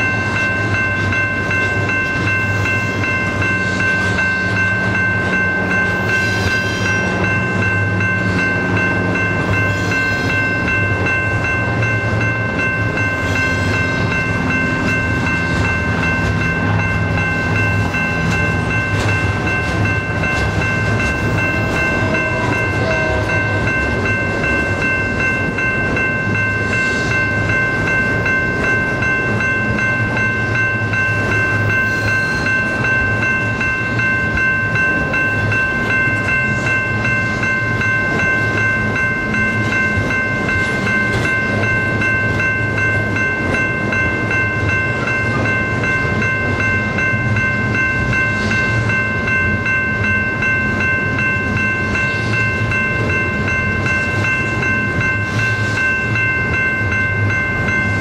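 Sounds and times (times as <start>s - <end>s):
train cars rumbling past: 0.0s - 58.0s
high-pitched wheel squeal: 6.1s - 7.3s.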